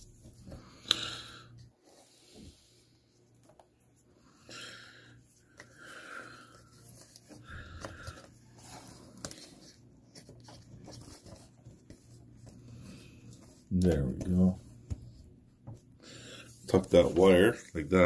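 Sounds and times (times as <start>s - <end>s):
person breathing: 0.5s - 3.0s, 4.1s - 9.1s, 16.0s - 16.7s.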